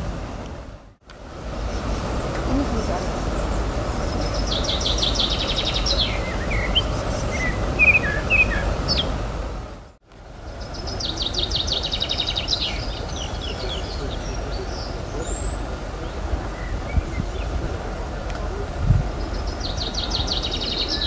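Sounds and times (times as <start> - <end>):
steady low rumble: 0.0 - 11.0
songbird trilling and chirping: 1.7 - 9.1, 10.5 - 15.6, 19.2 - 21.0.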